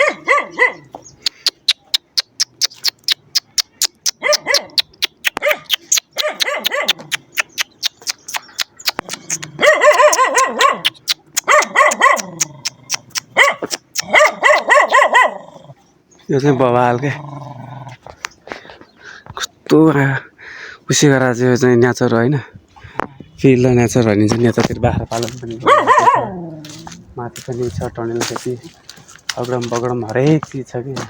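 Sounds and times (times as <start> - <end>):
dog barking and yipping: 0.0 - 1.0, 1.8 - 15.5, 25.5 - 27.0
fast sharp clicks: 1.2 - 10.2.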